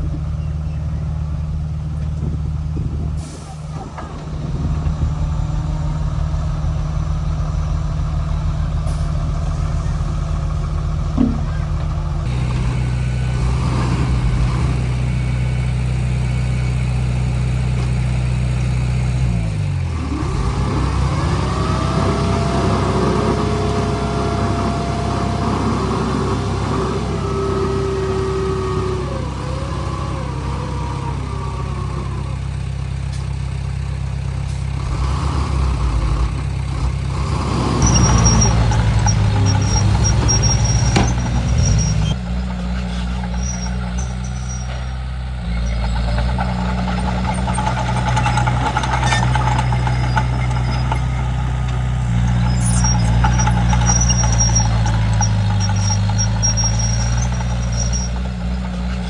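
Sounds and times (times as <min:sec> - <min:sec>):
bulldozer diesel engine running: 0:00.0 - 0:59.0
metal clanks: 0:08.9 - 0:12.8
short high squeaks: 0:37.8 - 0:42.2, 0:42.8 - 0:51.3, 0:52.2 - 0:59.0.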